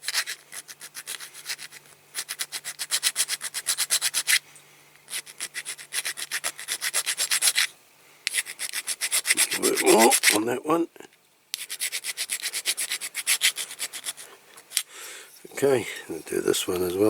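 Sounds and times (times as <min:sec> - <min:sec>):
hand file scraping metal: 0:00.0 - 0:04.4, 0:05.1 - 0:07.7, 0:08.3 - 0:10.5, 0:11.6 - 0:15.5.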